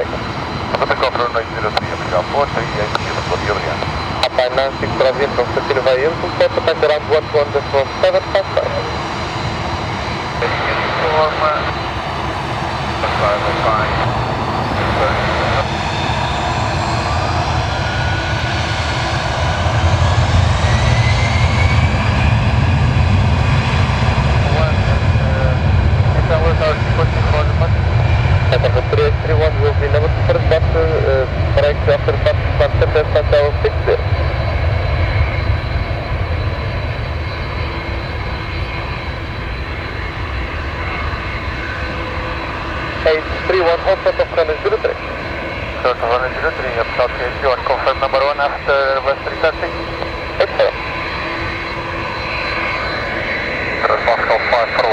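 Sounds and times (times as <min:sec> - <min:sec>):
faint high whine: 0:00.0 - 0:21.7
airliner engines rumbling with whine: 0:00.0 - 0:54.9.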